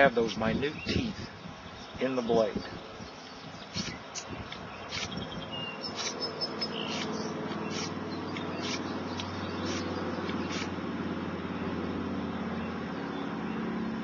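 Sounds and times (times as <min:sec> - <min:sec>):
low engine hum: 0:02.6 - 0:14.0
hand file scraping steel: 0:05.9 - 0:06.2, 0:06.8 - 0:10.7.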